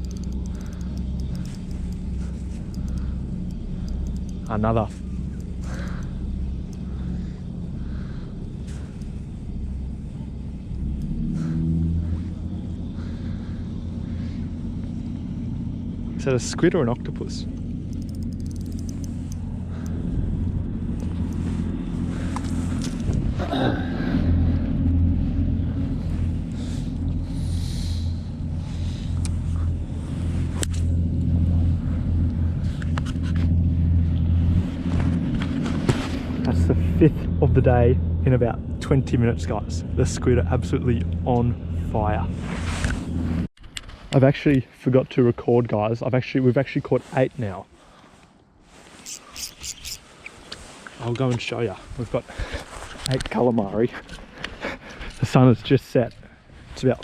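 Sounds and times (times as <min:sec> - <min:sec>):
sharp click: 0:00.0 - 0:02.1, 0:17.9 - 0:19.4
low engine rumble: 0:00.0 - 0:57.0.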